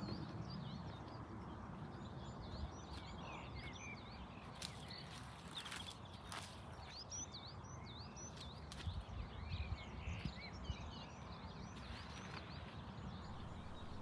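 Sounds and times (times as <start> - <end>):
small birds chirping: 0.0 - 14.0
faint low rumble: 13.0 - 14.0.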